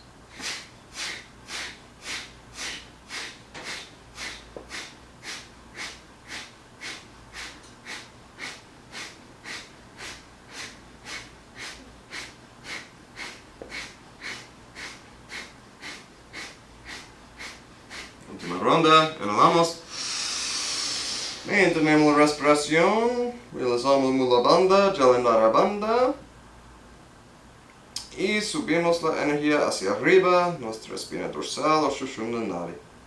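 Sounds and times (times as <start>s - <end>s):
forceful nasal exhalations: 0.3s - 18.6s, 19.8s - 21.8s.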